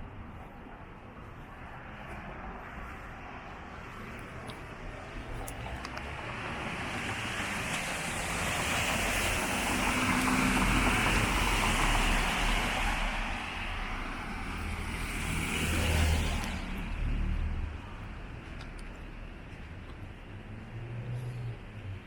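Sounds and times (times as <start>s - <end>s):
tyres hissing on wet road: 6.3s - 17.3s.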